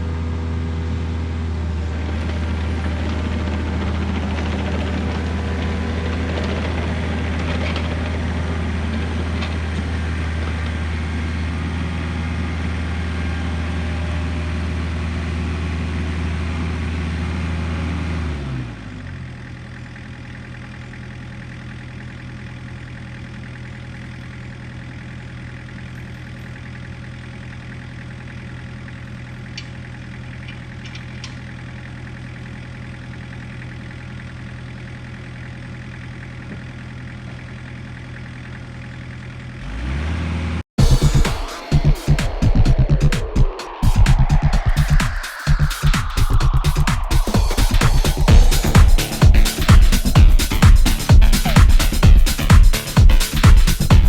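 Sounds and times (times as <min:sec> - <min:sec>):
excavator diesel engine: 0:00.0 - 0:54.0.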